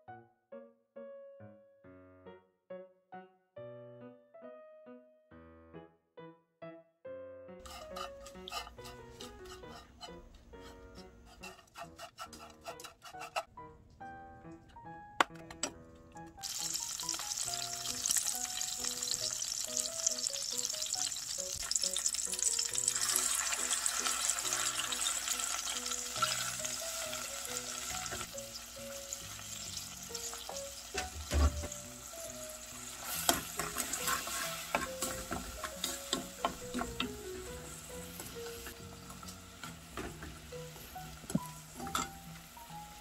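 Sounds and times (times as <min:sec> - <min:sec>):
light background tune: 0:00.0 - 0:43.0
garlic sizzling in hot oil: 0:07.6 - 0:09.9, 0:16.4 - 0:43.0
wooden spatula stirring: 0:07.6 - 0:13.5, 0:33.3 - 0:39.3.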